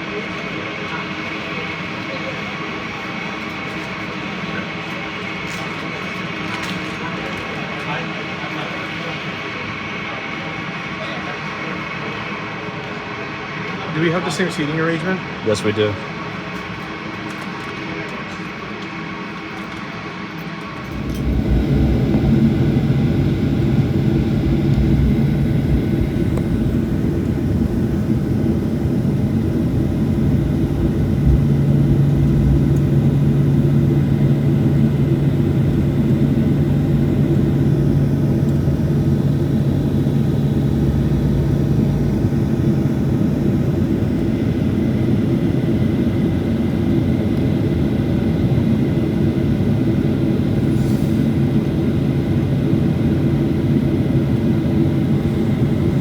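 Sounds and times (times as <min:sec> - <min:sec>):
airliner cabin drone: 0:00.0 - 0:56.0
low hum: 0:20.9 - 0:46.8.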